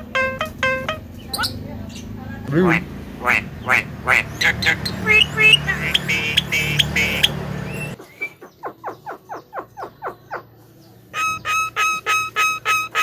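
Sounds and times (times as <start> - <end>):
falling bird chirps: 0.0 - 2.2, 3.2 - 10.4
myna chattering calls: 0.0 - 10.5, 11.1 - 13.0
repeated pitched bird notes: 0.0 - 10.5, 11.1 - 13.0
low traffic noise: 0.0 - 13.0.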